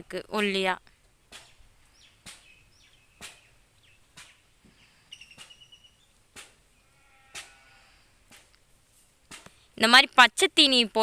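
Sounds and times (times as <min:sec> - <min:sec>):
birds chirping: 0:01.3 - 0:07.5.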